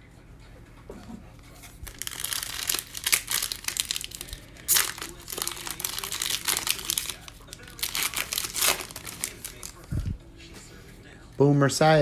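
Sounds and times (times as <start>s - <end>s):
foil wrapper crinkling: 1.4s - 10.0s
card pack torn open: 1.6s - 10.0s.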